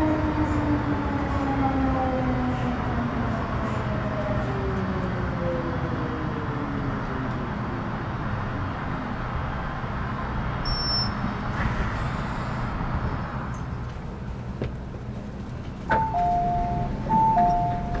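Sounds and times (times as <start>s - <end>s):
train running rumble: 0.0s - 18.0s
two-tone door chime: 15.9s - 18.0s.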